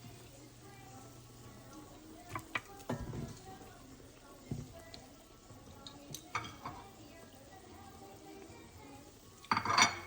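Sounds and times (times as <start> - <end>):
utensils and cookware knocking: 9.5 - 10.0.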